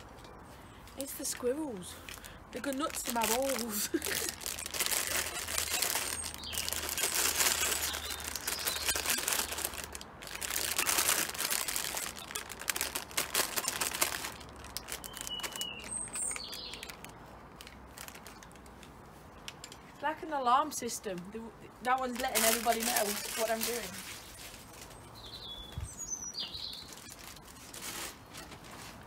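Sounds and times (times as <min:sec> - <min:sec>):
plastic bag crinkling: 0:01.0 - 0:18.7, 0:21.9 - 0:25.0, 0:26.6 - 0:29.0.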